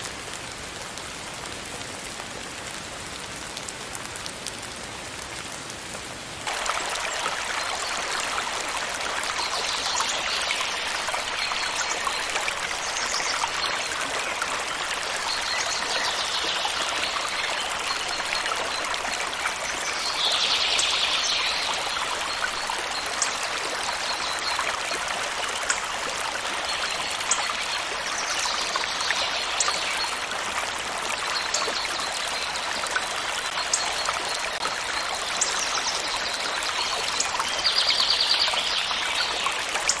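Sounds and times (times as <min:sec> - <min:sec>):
rain falling: 0:00.0 - 0:40.0
stream flowing: 0:00.0 - 0:40.0.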